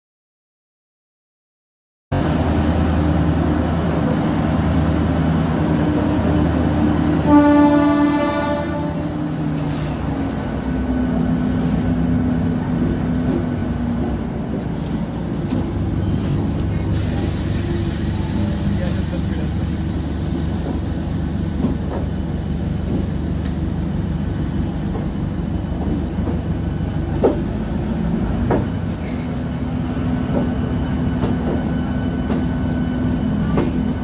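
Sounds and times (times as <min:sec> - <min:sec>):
diesel train engine running: 0:02.1 - 0:34.0
train horn: 0:07.1 - 0:09.2.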